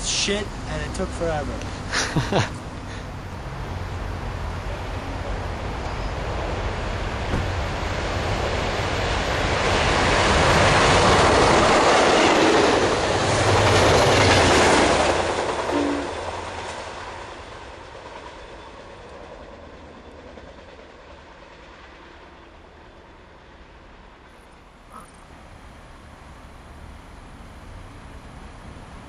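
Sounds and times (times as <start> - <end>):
train passing at speed: 0.0 - 29.0
wheels clickety-clack on rails: 3.8 - 25.1.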